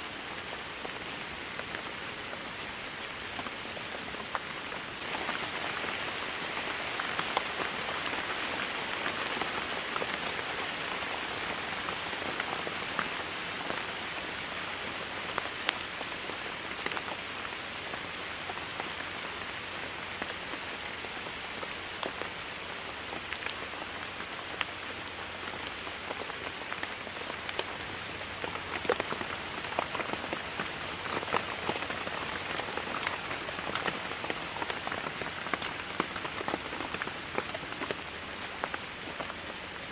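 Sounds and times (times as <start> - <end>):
steady rainfall hiss: 0.0 - 39.9
raindrops tapping on surface: 23.0 - 39.4.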